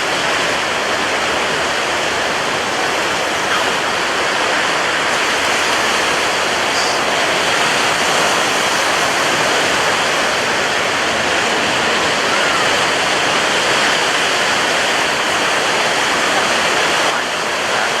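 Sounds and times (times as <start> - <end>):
ocean waves washing onto shore: 0.0 - 18.0.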